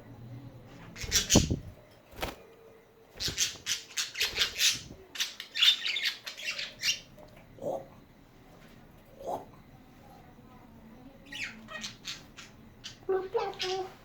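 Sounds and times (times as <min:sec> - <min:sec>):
harsh scratchy budgie calls: 0:01.0 - 0:02.3, 0:03.2 - 0:07.1, 0:11.3 - 0:14.0
wings fluttering: 0:01.0 - 0:05.0.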